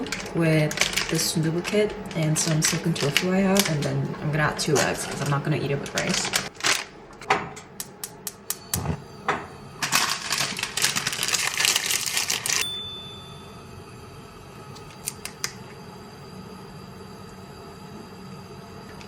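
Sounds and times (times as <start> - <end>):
low steady hum: 12.6 - 19.0.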